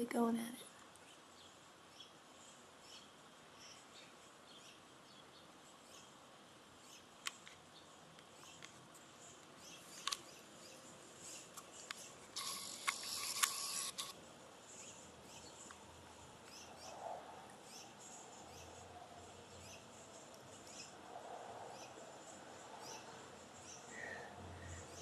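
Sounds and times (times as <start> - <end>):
scratchy noise: 12.1 - 14.2.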